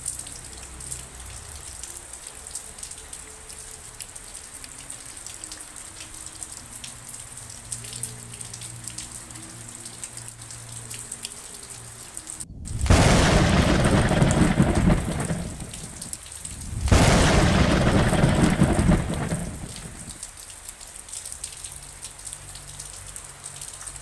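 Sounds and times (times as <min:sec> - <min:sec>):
rain pattering: 0:00.0 - 0:24.0
thunder rolling: 0:12.5 - 0:20.2.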